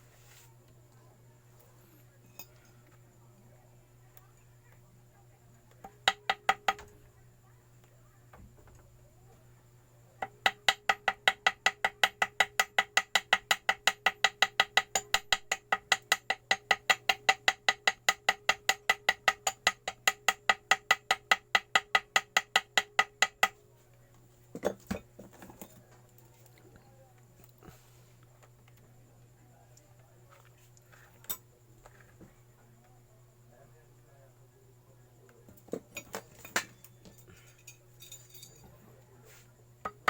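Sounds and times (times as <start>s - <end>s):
small hammer tapping on metal: 5.7s - 7.0s, 10.2s - 23.6s.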